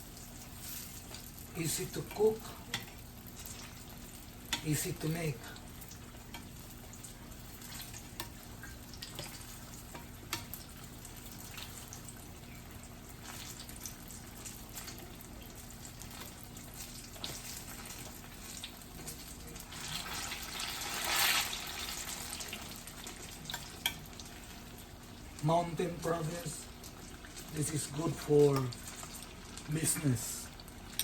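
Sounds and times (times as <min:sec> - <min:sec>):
food sizzling in oil: 0:00.0 - 0:31.0.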